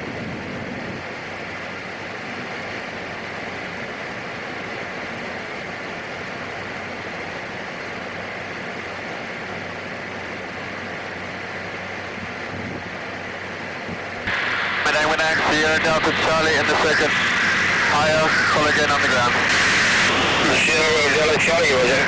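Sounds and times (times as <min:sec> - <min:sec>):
turboprop cabin drone: 0:13.6 - 0:22.0.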